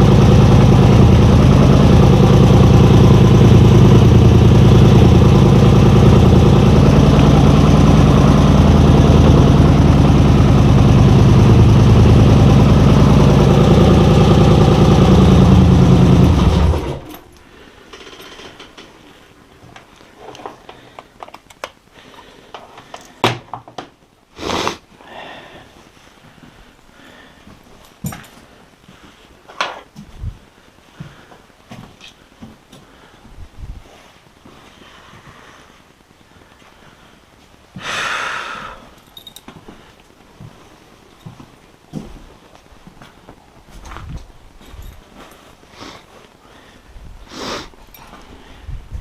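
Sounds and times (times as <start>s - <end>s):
vehicle engine idling: 0.0s - 17.3s.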